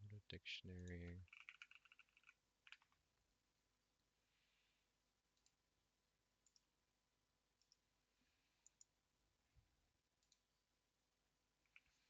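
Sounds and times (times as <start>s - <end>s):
computer mouse clicks: 0.8s - 3.0s, 5.3s - 5.6s, 6.4s - 6.7s, 7.6s - 7.9s, 8.6s - 9.0s, 10.2s - 10.5s, 11.6s - 12.0s.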